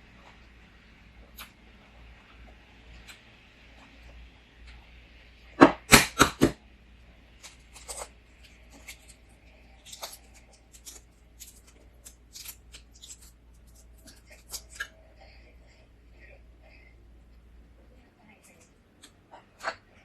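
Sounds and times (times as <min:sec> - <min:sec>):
shell crunching and crackling: 0:07.4 - 0:15.0.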